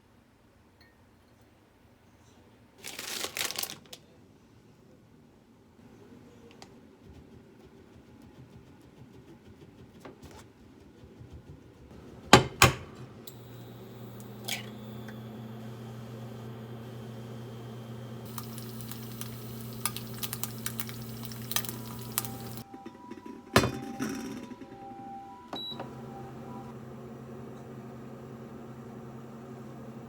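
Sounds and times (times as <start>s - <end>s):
low appliance hum: 11.2s - 30.0s.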